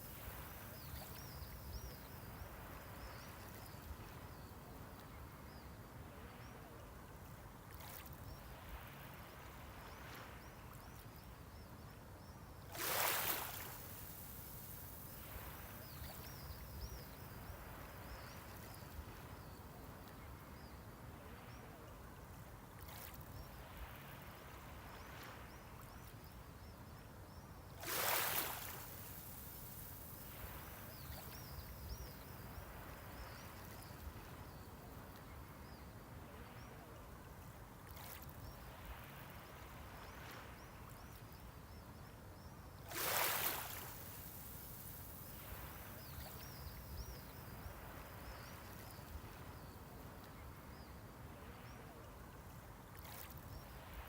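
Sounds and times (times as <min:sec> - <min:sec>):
low wash of sea: 0:00.0 - 0:54.0
waves breaking: 0:12.7 - 0:18.4, 0:27.8 - 0:34.4, 0:42.9 - 0:49.4.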